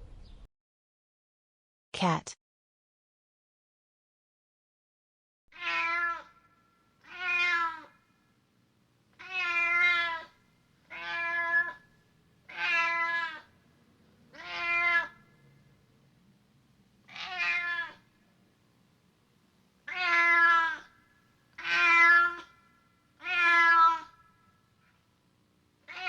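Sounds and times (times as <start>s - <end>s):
cat meowing: 5.5s - 8.0s, 9.2s - 11.9s, 12.5s - 13.6s, 14.3s - 15.5s, 17.0s - 18.1s, 19.8s - 24.3s.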